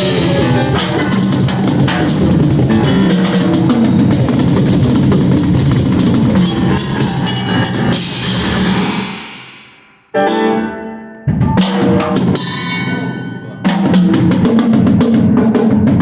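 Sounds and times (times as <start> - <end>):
rock band playing live: 0.0 - 8.8
driving drum kit: 0.0 - 10.3, 11.3 - 16.0.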